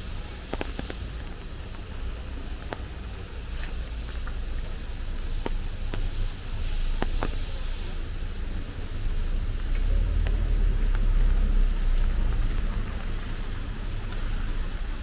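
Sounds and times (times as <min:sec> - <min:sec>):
traffic rumble: 0:00.0 - 0:15.0
brief hiss: 0:03.6 - 0:08.3
raindrops tapping: 0:08.4 - 0:15.0.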